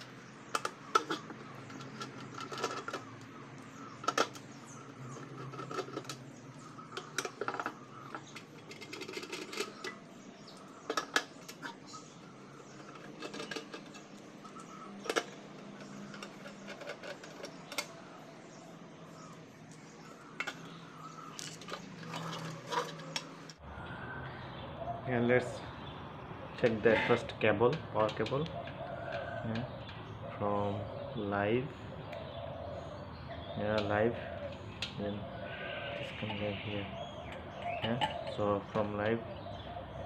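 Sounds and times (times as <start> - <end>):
tools and parts clattering: 0.0 - 18.1, 19.7 - 23.6.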